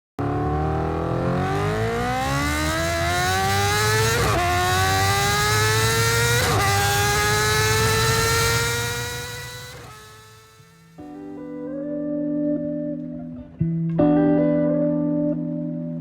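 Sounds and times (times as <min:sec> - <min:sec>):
vehicle engine accelerating: 0:00.2 - 0:11.1.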